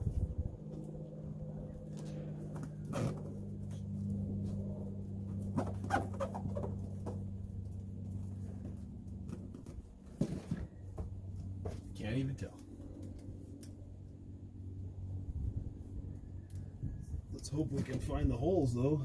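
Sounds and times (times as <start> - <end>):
steady low hum: 0.0 - 19.0
hand taps scrapes and rustles: 5.4 - 13.8.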